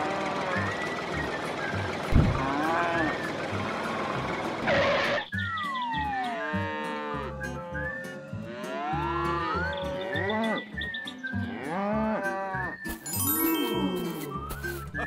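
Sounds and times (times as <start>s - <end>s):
cows mooing: 0.0s - 0.7s, 2.3s - 3.3s, 6.4s - 12.8s.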